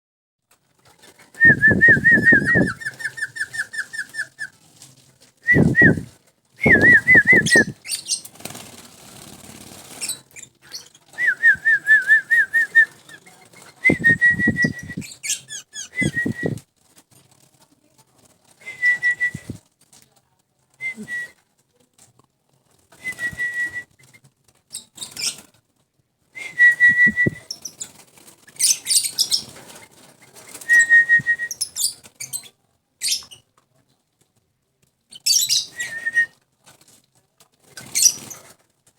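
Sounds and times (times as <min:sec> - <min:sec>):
bird wings fluttering: 0:00.8 - 0:17.6, 0:18.4 - 0:19.7, 0:26.4 - 0:32.0, 0:37.6 - 0:38.6.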